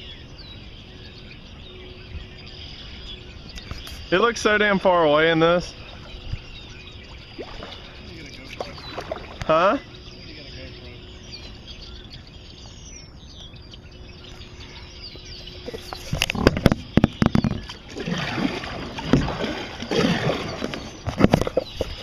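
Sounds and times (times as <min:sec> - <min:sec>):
birds chirping: 0:00.0 - 0:22.0
kayak paddle splashes: 0:05.8 - 0:09.8, 0:15.6 - 0:22.0.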